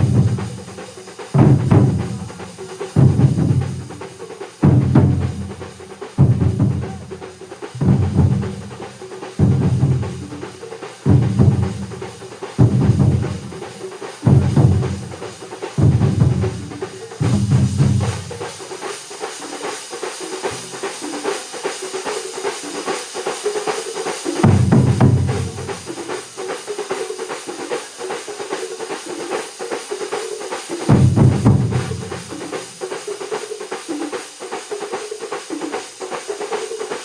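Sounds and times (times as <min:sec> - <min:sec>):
heavy booming drum strokes: 0:00.0 - 0:19.2, 0:24.0 - 0:27.8, 0:30.8 - 0:33.4
drum ensemble playing: 0:00.0 - 0:37.0.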